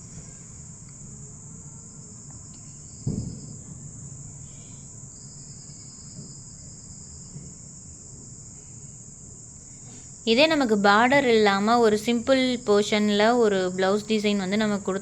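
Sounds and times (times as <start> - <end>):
insects trilling: 0.0 - 15.0
second insect trill: 0.0 - 15.0
dull thump: 3.1 - 3.6.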